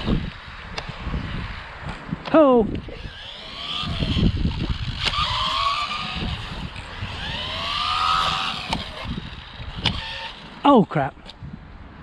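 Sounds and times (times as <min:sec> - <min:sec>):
electric toy car motor whining: 0:00.0 - 0:00.4, 0:02.8 - 0:10.7
sharp click: 0:08.7 - 0:09.1.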